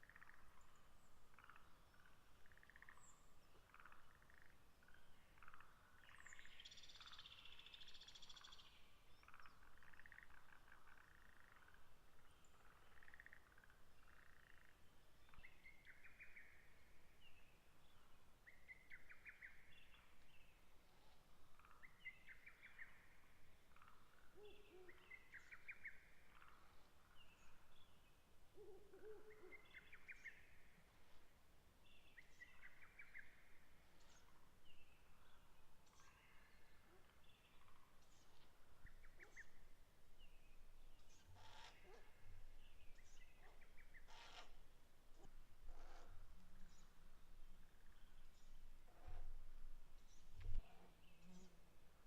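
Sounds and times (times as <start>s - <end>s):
short trilling bird calls: 44.0s - 44.6s.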